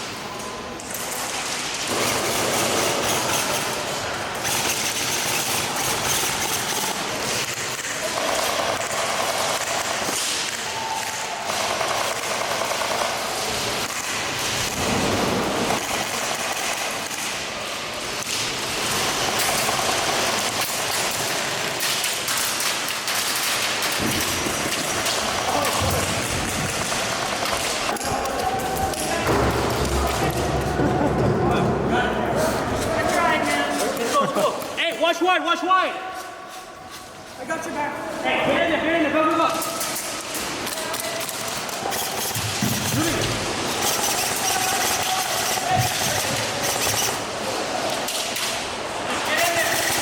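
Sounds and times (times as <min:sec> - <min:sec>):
airsoft guns firing in bursts: 0:04.4 - 0:17.4, 0:18.1 - 0:28.0.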